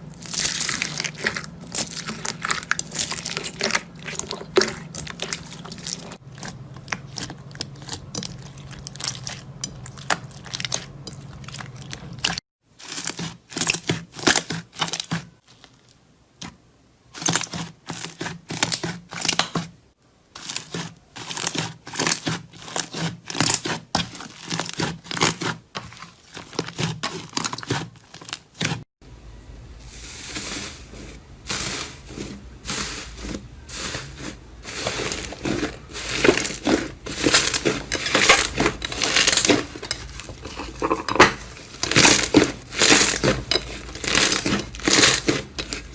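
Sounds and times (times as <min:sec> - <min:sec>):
slime crackling and popping: 0:00.2 - 0:15.0, 0:41.8 - 0:45.9.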